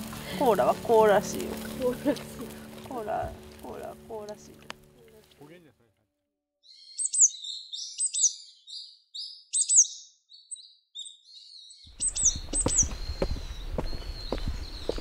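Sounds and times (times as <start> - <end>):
small bird chirping: 6.6 - 15.0
outdoor background noise: 11.9 - 15.0.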